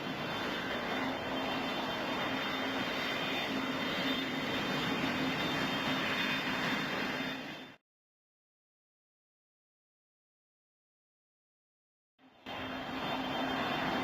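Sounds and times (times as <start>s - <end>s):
aircraft engines running: 0.0s - 7.8s, 12.2s - 14.0s.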